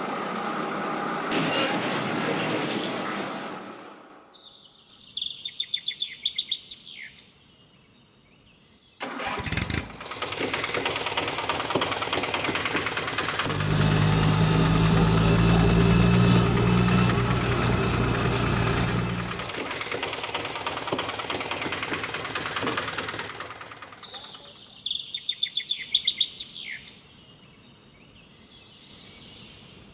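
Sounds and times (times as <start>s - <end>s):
low engine drone: 0.0s - 4.3s, 9.5s - 24.1s
vehicle engine starting: 0.0s - 4.4s, 9.0s - 24.4s.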